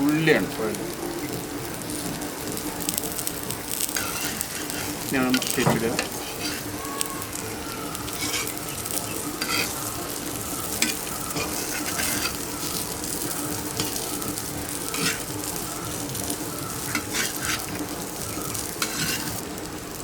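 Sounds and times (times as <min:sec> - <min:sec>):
food sizzling in oil: 0:00.0 - 0:20.0
utensil clicking against pan: 0:08.1 - 0:09.9, 0:10.5 - 0:19.4.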